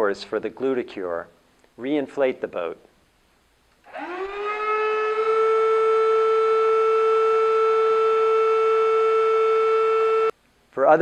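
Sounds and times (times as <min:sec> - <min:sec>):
electric air pump whining: 0:03.8 - 0:10.3.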